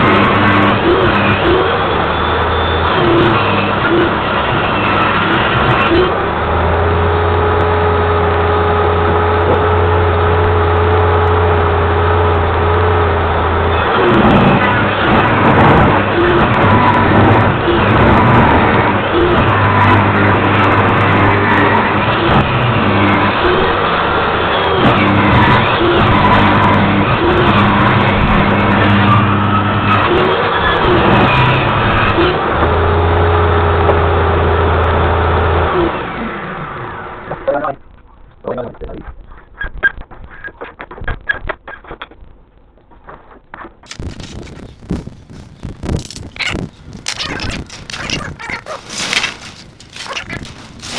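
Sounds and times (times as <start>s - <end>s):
motor humming: 43.9s - 50.9s.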